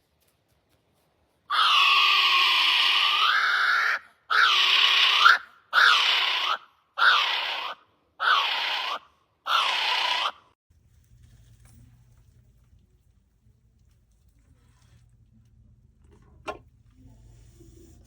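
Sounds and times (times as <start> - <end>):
bird screeching calls: 1.5 - 10.4.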